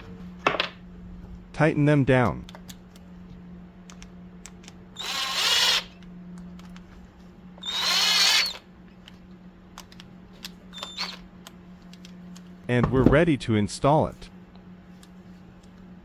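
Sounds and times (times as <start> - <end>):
power driver motor whine: 3.9 - 6.8, 7.5 - 8.7, 9.9 - 12.1.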